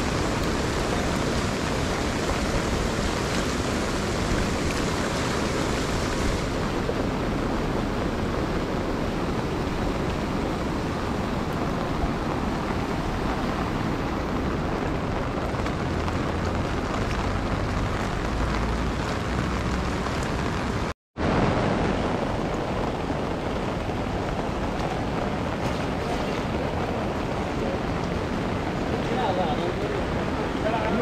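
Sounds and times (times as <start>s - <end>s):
rain and river water rushing: 0.0s - 31.0s
wind rumble on microphone: 0.0s - 31.0s.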